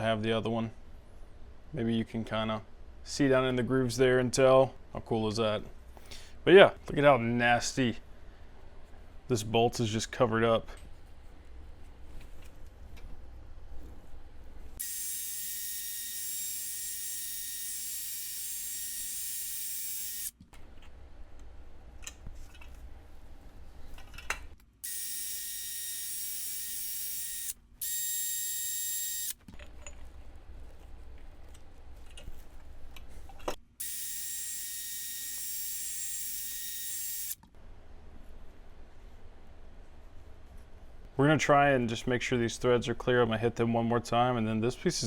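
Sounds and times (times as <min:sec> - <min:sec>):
power wire wheel whining: 0:14.8 - 0:20.4.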